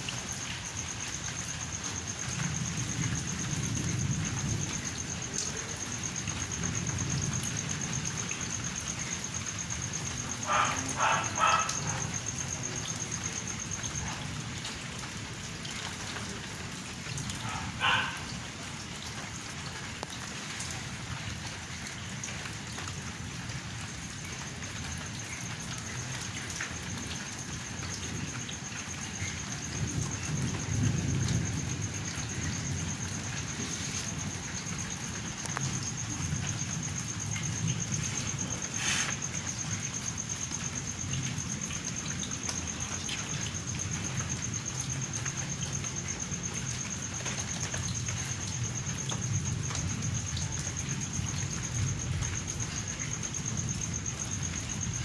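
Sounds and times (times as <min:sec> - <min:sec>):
steady rain falling: 0:00.0 - 0:55.0
low rolling thunder: 0:01.9 - 0:15.6, 0:26.8 - 0:47.1
dog barking: 0:10.4 - 0:12.3, 0:17.4 - 0:18.4.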